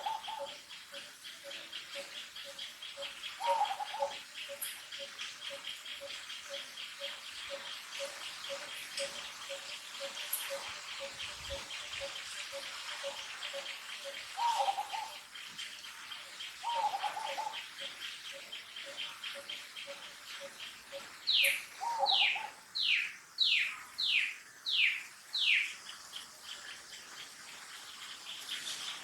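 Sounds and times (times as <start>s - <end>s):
rhythmic chirping: 0.0s - 15.5s, 16.2s - 22.3s.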